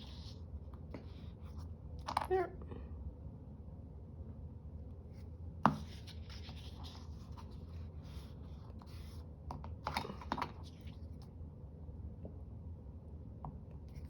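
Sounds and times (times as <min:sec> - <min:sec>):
tap on paper: 0:05.6 - 0:05.9
paper rustling and scratching: 0:05.7 - 0:11.2.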